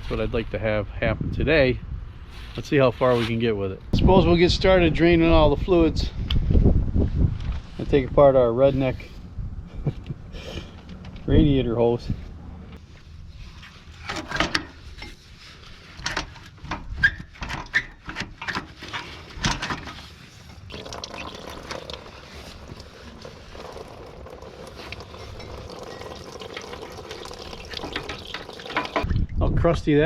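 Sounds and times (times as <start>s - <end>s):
coolant pouring out: 20.6s - 29.1s.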